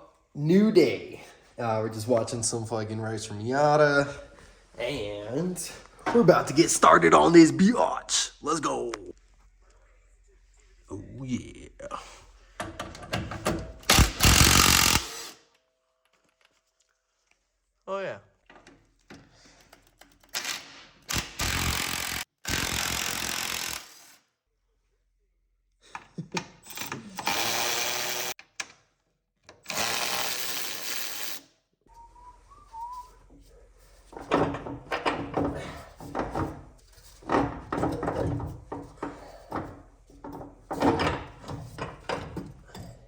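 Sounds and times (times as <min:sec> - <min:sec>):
power tool running: 0:13.9 - 0:15.4, 0:20.4 - 0:24.2, 0:27.2 - 0:28.4, 0:29.7 - 0:31.4
metallic knocks and clanks: 0:34.1 - 0:43.0.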